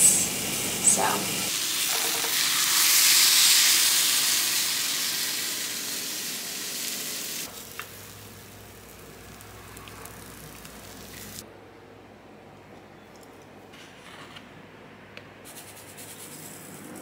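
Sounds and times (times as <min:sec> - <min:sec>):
food sizzling in a skillet: 0:00.0 - 0:11.4.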